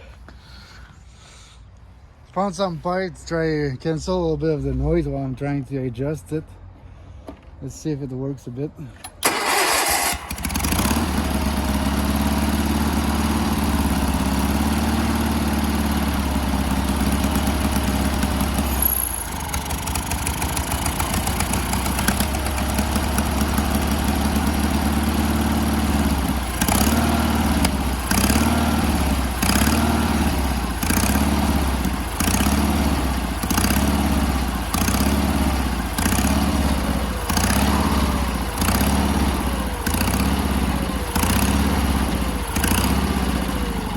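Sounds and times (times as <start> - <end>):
garden tractor engine surging: 9.0 - 43.9.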